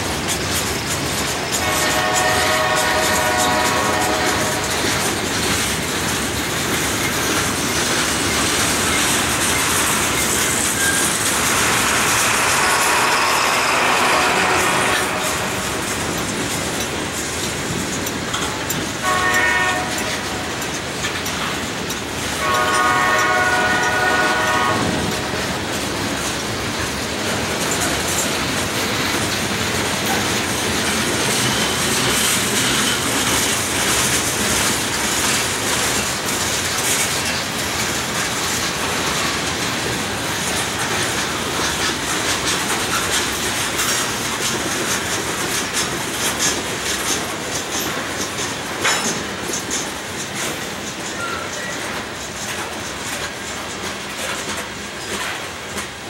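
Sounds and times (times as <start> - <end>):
train wheels clattering: 0.0 - 56.0
locomotive horn blasts: 1.6 - 4.7, 12.4 - 15.7, 19.0 - 20.3, 22.4 - 25.3.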